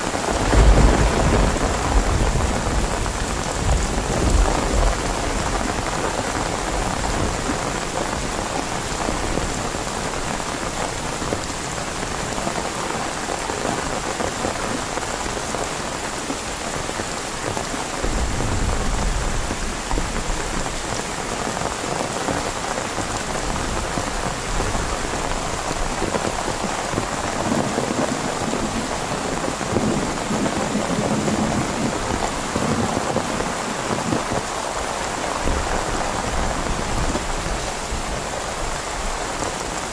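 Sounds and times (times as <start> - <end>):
heavy rain falling: 0.0 - 39.9
low rumble of thunder: 0.2 - 9.6, 18.0 - 20.8.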